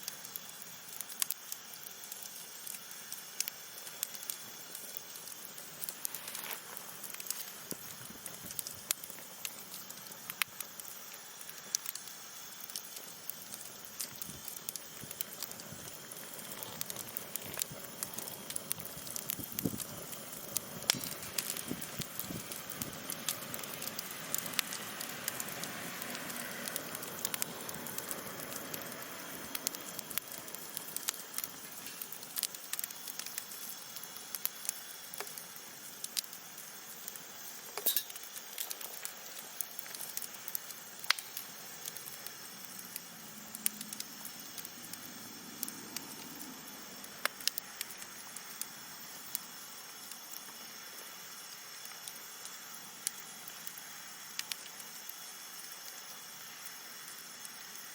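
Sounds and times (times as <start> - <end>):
wood fire crackling and popping: 0.0 - 57.9.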